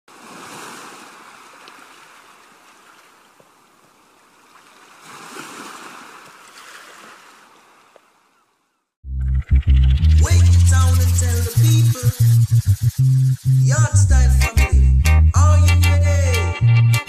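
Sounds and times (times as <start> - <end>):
sea surf washing ashore: 0.1 - 7.9.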